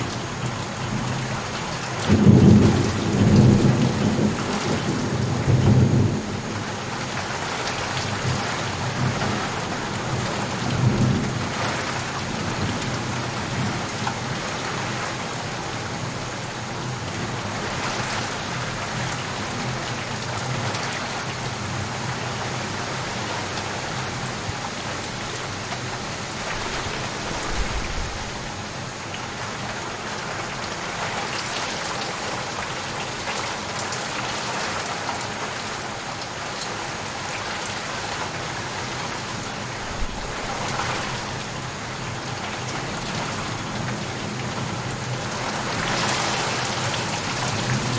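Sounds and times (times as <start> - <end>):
steady rain: 0.0 - 47.9
thunder rumbling: 2.1 - 14.6, 26.3 - 28.9, 39.6 - 43.3.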